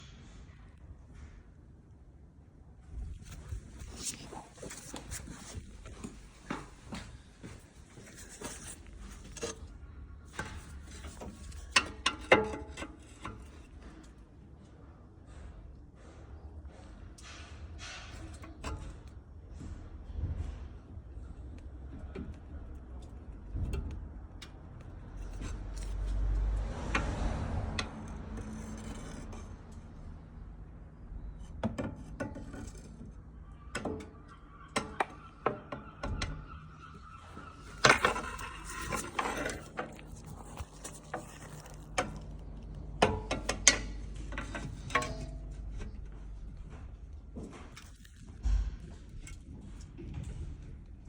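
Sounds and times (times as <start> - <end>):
sharp clicks and knocks: 31.2 - 51.0
squeaky creaks: 32.4 - 43.0.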